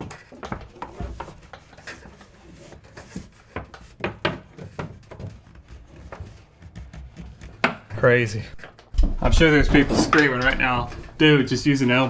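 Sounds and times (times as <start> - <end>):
tubing knocks clicks and scrapes: 0.0 - 12.0.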